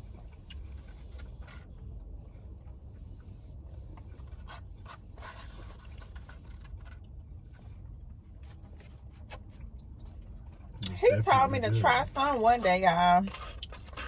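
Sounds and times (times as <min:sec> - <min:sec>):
small clicks and rustles: 0:03.9 - 0:10.8, 0:13.2 - 0:14.0
steady low hum: 0:07.2 - 0:13.3.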